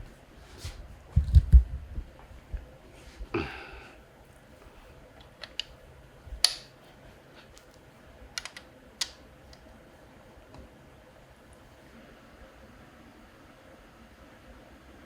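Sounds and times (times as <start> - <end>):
tools and parts clicking: 5.2 - 5.7, 8.4 - 9.6.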